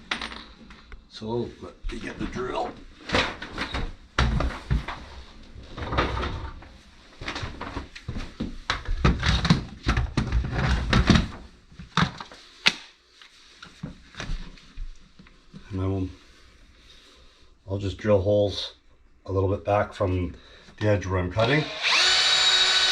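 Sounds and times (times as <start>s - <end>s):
tools knocking and clattering: 0.0s - 0.8s.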